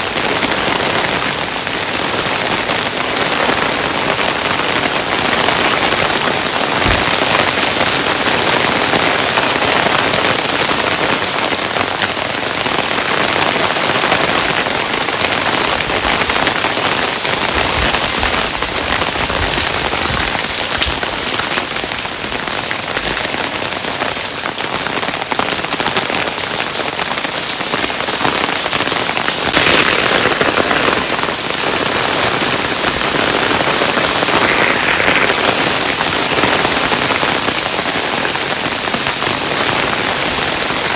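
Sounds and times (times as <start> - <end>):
hailstones pattering: 0.1 - 40.9
heavier low thuds: 6.8 - 7.4.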